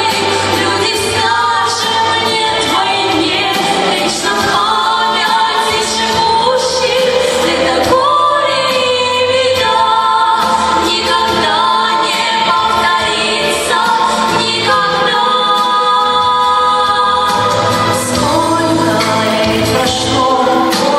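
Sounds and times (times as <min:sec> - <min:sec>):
choir singing long held notes: 0:00.0 - 0:20.9.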